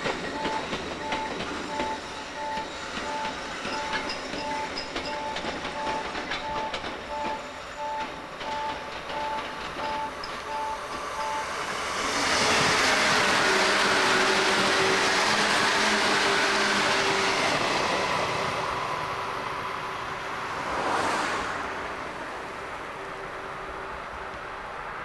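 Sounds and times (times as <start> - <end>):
passenger train passing: 0.0 - 25.0.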